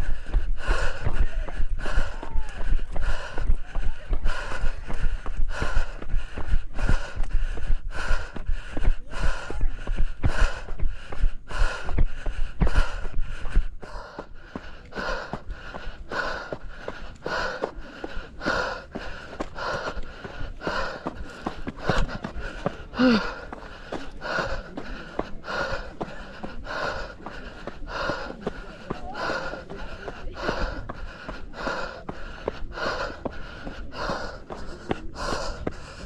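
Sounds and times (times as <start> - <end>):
hard rapid breathing: 0.0 - 36.0
person grunting: 23.0 - 23.4.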